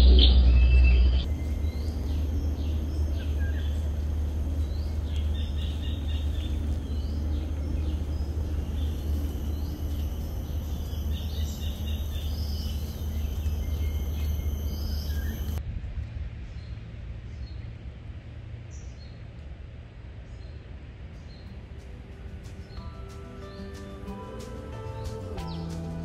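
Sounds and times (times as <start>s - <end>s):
birds chirping: 0.0s - 15.6s, 21.2s - 26.0s
steady low rumble: 0.0s - 26.0s.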